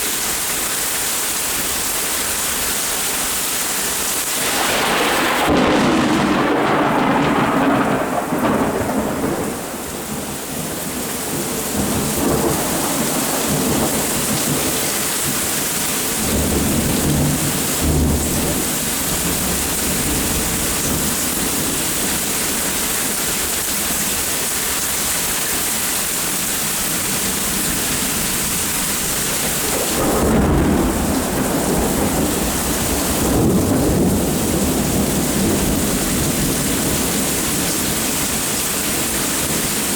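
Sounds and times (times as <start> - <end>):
steady rain falling: 0.0 - 39.9
thunder rumbling: 4.4 - 22.8, 26.9 - 39.9.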